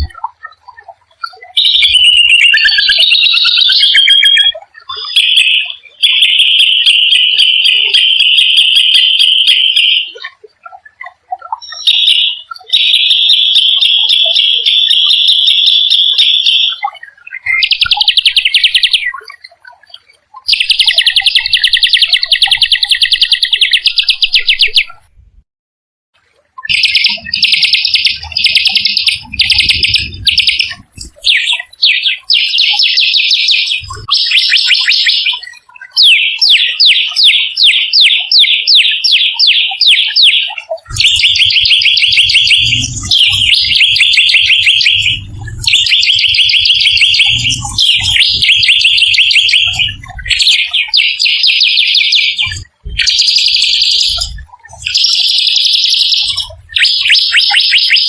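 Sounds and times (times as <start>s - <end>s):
songbird rolling trills: 26.7s - 31.9s.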